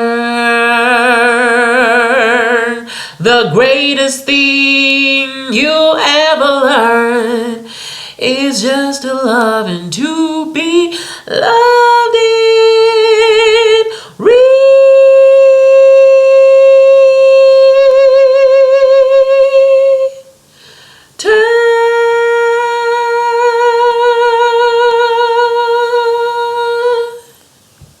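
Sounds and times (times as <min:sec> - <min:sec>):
person singing long notes: 0:00.0 - 0:20.4, 0:21.2 - 0:27.4
singer breathing: 0:02.9 - 0:03.2, 0:07.7 - 0:08.2, 0:10.9 - 0:11.3, 0:20.4 - 0:21.2.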